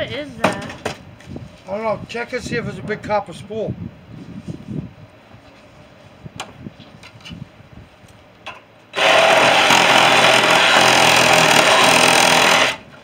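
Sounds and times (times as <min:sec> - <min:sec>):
power tool running: 0:09.0 - 0:13.0.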